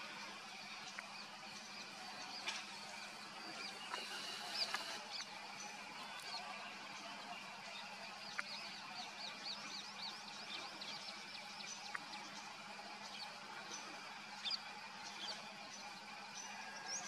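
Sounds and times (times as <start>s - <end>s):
faint steady hum: 0.0s - 17.0s
songbirds chirping: 0.0s - 17.0s.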